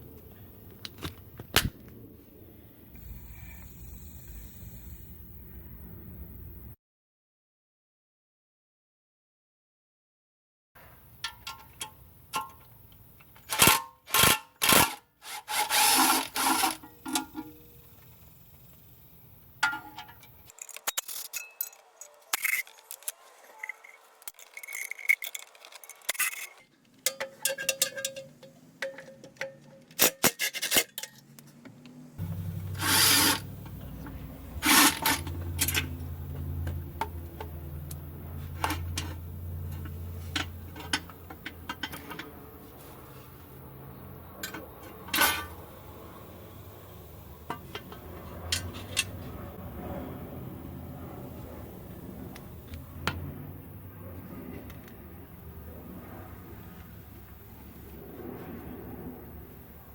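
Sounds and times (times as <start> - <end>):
hand tools clinking on metal: 11.2 - 17.7, 19.6 - 31.4, 32.2 - 43.1.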